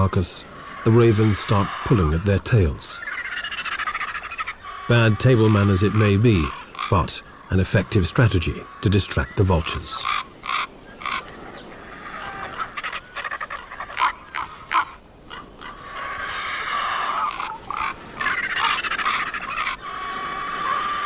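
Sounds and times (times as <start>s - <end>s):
birds calling harshly: 0.0s - 21.0s.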